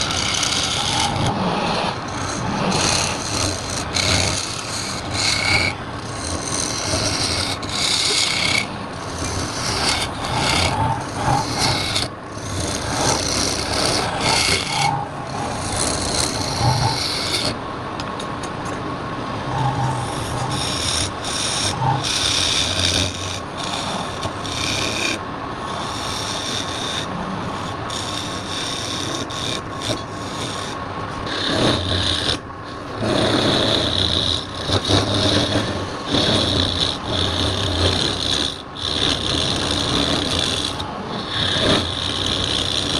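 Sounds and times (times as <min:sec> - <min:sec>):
lathe tool rasping on wood: 0:00.0 - 0:17.6, 0:19.4 - 0:42.9.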